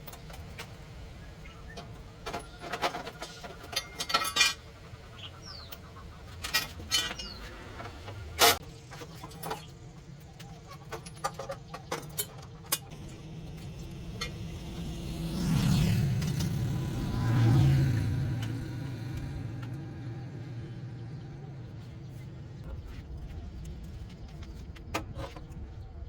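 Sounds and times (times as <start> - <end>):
metal tools clinking and knocking: 1.8 - 9.7, 10.4 - 12.9.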